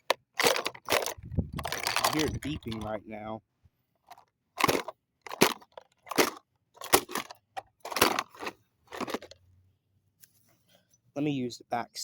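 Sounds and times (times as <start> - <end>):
plastic toy being smashed: 0.0 - 2.9, 4.6 - 9.4.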